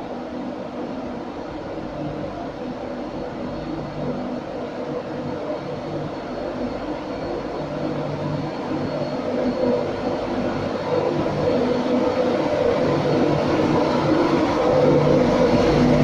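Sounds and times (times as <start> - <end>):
electric locomotive hum: 0.0 - 16.0.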